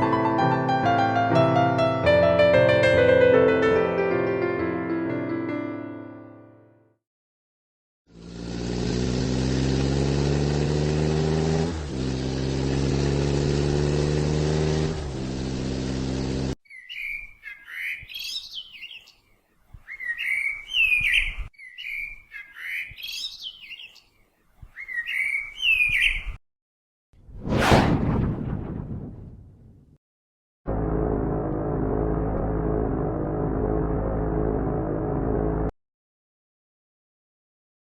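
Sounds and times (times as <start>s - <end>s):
bird chirping: 16.6s - 26.4s
low engine-like hum: 30.7s - 35.7s.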